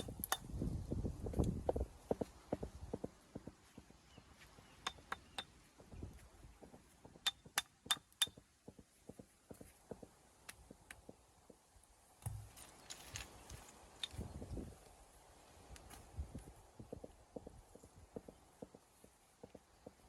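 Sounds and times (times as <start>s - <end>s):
stone knocking on stone: 4.8s - 5.9s.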